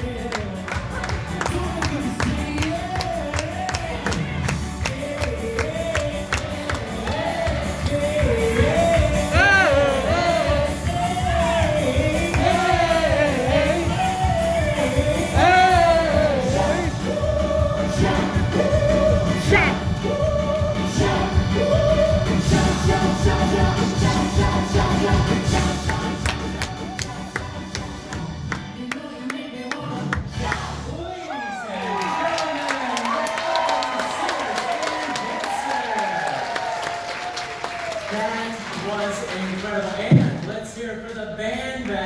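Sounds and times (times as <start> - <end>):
live band playing: 0.0 - 28.8
person singing: 0.0 - 31.3.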